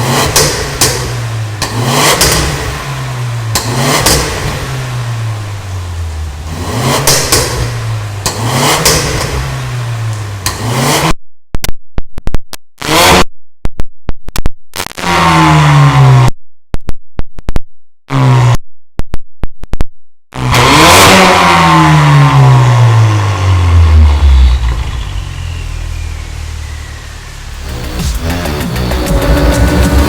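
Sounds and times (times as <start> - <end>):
car engine revving: 0.0 - 11.2, 12.8 - 13.3, 14.8 - 16.3, 18.1 - 18.6, 20.4 - 30.0.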